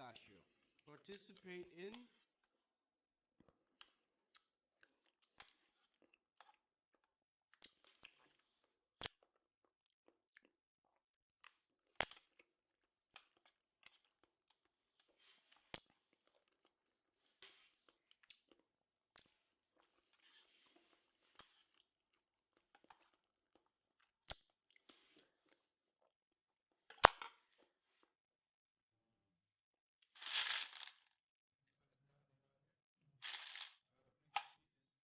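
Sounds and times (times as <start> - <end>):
person chewing and crunching food: 0.0 - 28.2.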